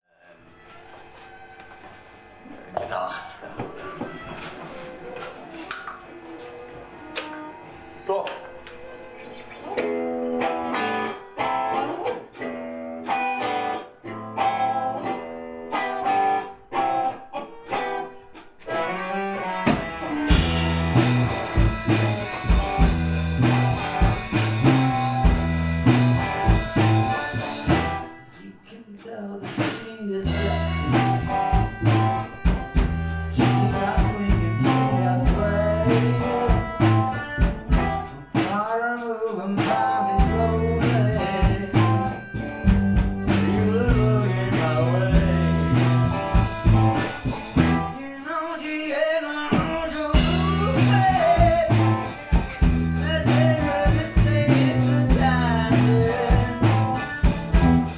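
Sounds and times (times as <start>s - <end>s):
guitar picking notes: 6.0s - 28.4s, 30.3s - 38.4s, 40.1s - 48.1s, 50.1s - 57.9s
rock band playing: 6.4s - 48.2s, 49.4s - 57.9s.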